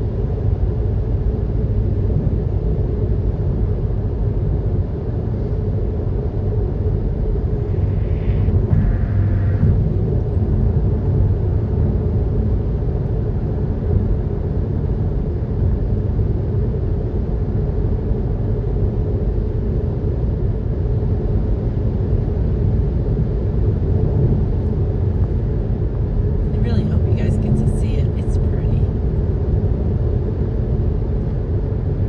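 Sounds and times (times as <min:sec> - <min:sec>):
road and engine rumble in cabin: 0:00.0 - 0:32.0.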